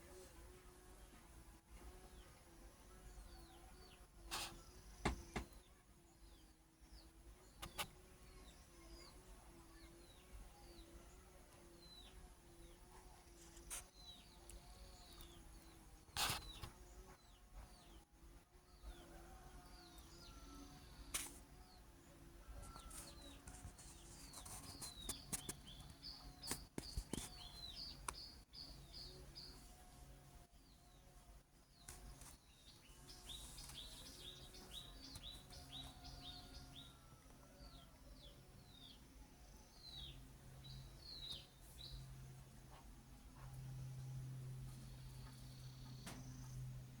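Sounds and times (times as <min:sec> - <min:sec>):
faint high bird chirps: 0:31.8 - 0:39.0.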